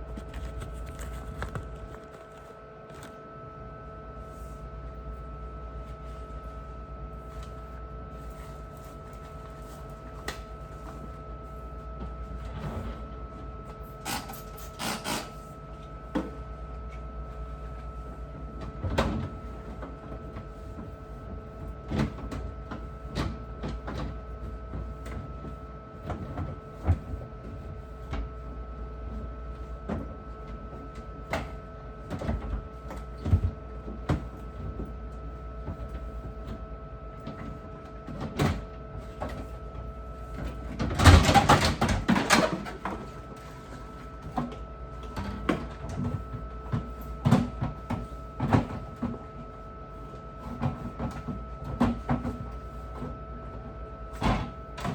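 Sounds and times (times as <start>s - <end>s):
steady hum: 0.0s - 23.5s
fridge shelves and items clattering: 29.6s - 49.4s, 50.4s - 53.2s, 54.1s - 54.9s.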